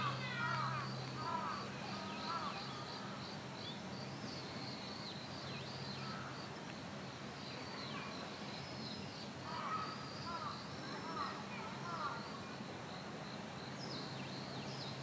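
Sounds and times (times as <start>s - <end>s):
background noise: 0.0s - 15.0s
small birds chirping: 0.0s - 15.0s.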